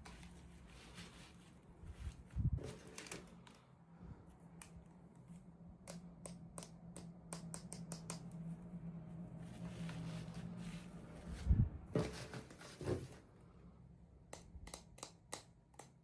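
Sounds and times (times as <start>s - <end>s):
low steady hum: 0.0s - 16.0s
plastic pieces clicking and tapping: 14.3s - 16.0s.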